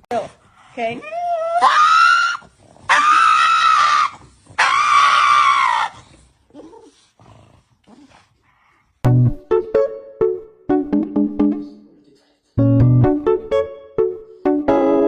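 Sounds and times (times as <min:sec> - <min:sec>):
animal screaming: 0:01.4 - 0:06.1.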